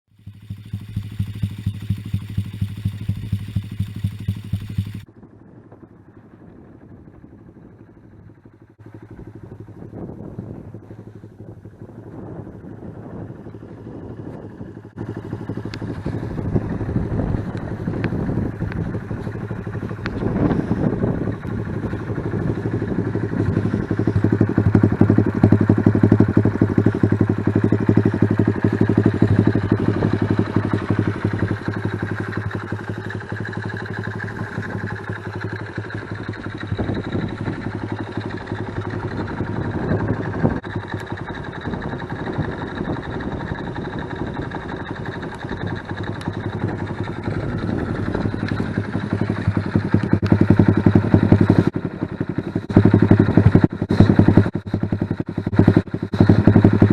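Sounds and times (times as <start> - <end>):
motorcycle engine idling: 0.1 - 56.9.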